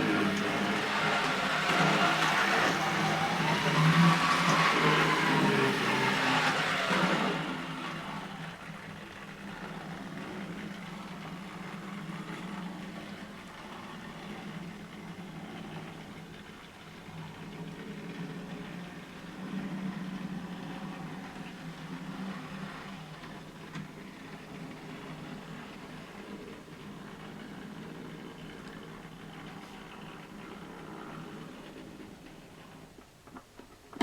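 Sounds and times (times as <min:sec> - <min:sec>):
model train motor and wheels: 0:00.0 - 0:33.7.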